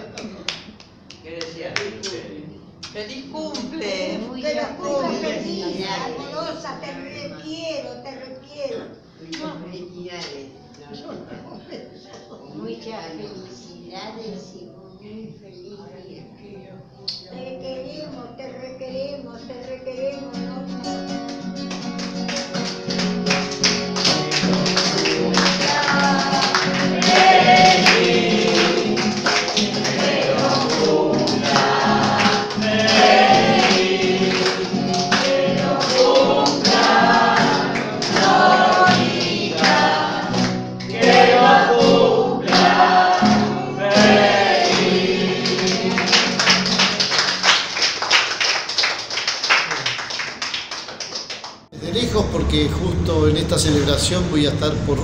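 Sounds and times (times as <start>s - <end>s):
rhythmic handclaps: 0.0s - 3.8s, 20.9s - 52.3s
group of voices singing: 3.8s - 7.4s, 24.0s - 47.0s
sustained low accompaniment notes: 51.8s - 55.0s.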